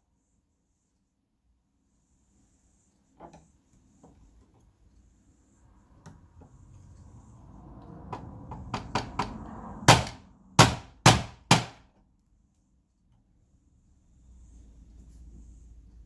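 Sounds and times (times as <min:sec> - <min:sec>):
sharp knocks on plastic: 0:08.5 - 0:11.8.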